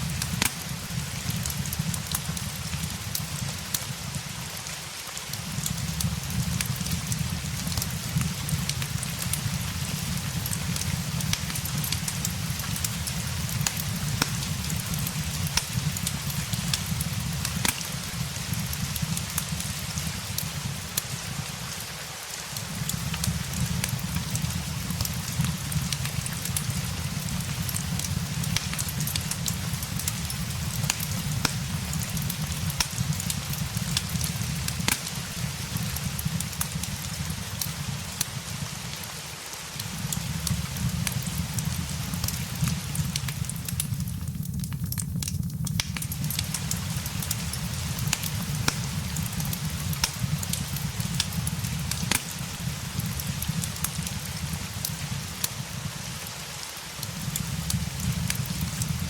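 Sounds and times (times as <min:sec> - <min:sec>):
fireplace crackling: 0:00.0 - 0:59.0
rain hiss: 0:00.0 - 0:59.0
low steady rumble: 0:39.9 - 0:54.8.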